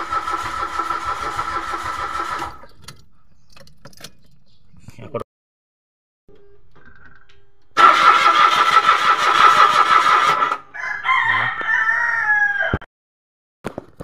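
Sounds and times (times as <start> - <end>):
car engine cranking: 0.0 - 4.5, 7.7 - 10.6
rooster crowing: 10.6 - 12.9.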